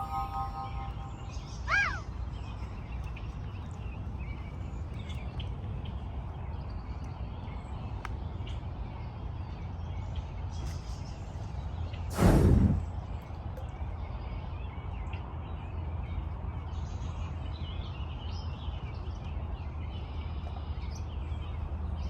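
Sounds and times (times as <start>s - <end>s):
electronic music tones: 0.0s - 1.5s
faint bird calls: 0.0s - 2.8s
low rumble: 12.1s - 13.2s.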